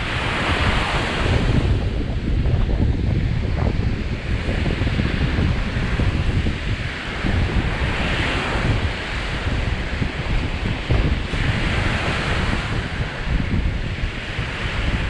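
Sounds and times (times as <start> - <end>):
waves breaking on beach: 0.0 - 15.0
wind buffeting microphone: 0.0 - 15.0.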